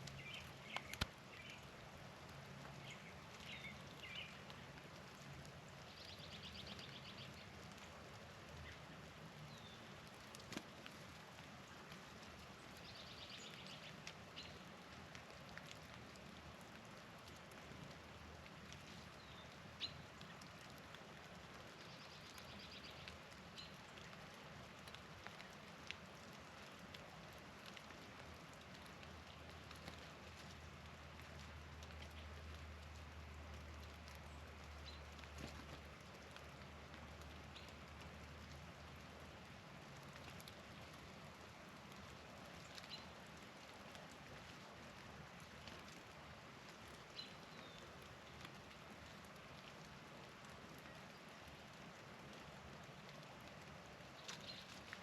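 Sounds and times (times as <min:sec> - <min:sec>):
bird chips and clicks: 0:00.1 - 0:01.7, 0:54.2 - 0:55.0.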